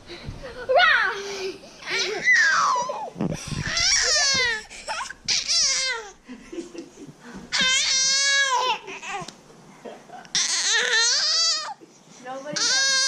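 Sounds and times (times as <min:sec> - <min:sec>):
baby crying: 0:01.8 - 0:06.2, 0:07.5 - 0:09.3, 0:10.3 - 0:11.8, 0:12.5 - 0:13.0.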